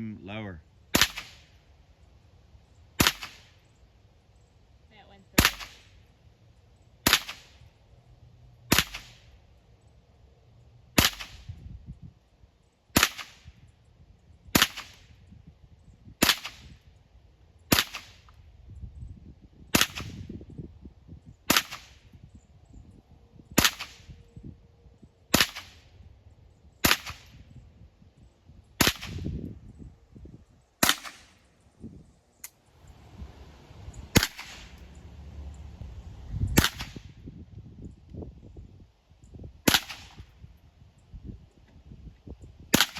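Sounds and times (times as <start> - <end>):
rifle firing single shots: 0.9 - 1.6, 3.0 - 3.6, 5.4 - 6.0, 7.0 - 7.6, 8.7 - 9.3, 11.0 - 11.4, 13.0 - 13.5, 14.6 - 15.0, 16.2 - 16.7, 17.7 - 18.2, 19.7 - 20.2, 21.5 - 22.0, 23.6 - 24.1, 25.3 - 25.8, 26.8 - 27.4, 28.8 - 29.3, 30.8 - 31.4, 34.2 - 34.8, 36.6 - 37.1, 39.6 - 40.3.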